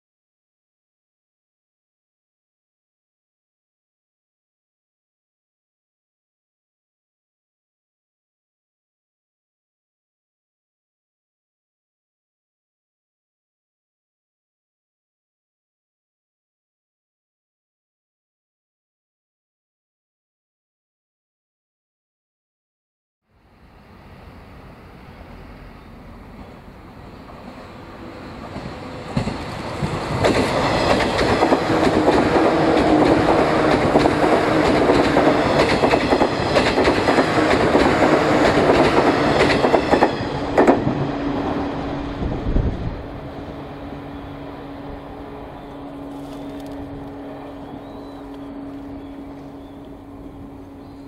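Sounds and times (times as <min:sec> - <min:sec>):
electric train passing: 0:23.3 - 0:51.0.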